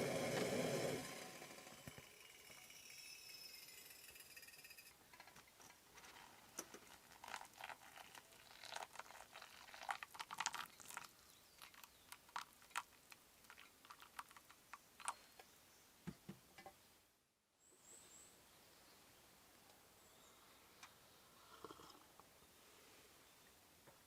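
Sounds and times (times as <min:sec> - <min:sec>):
crinkling rustles: 0:05.1 - 0:15.2.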